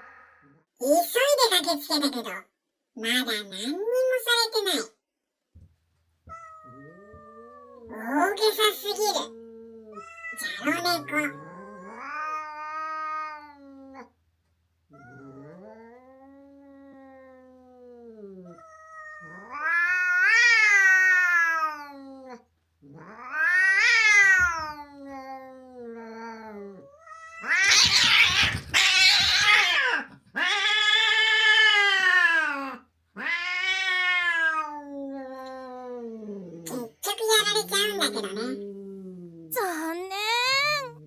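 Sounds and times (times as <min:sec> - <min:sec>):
cat yowling: 0:06.3 - 0:08.0, 0:09.2 - 0:14.1, 0:14.9 - 0:17.8, 0:18.4 - 0:22.4, 0:23.0 - 0:36.0, 0:39.5 - 0:41.0.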